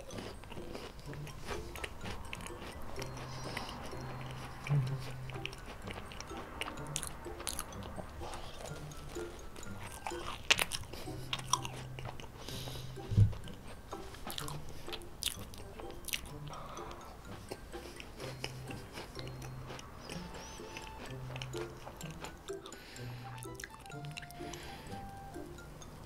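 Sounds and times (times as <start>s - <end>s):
crisp shell crackling when chewed: 0.0s - 12.6s, 13.4s - 16.5s
soft mouth sounds: 0.0s - 25.6s.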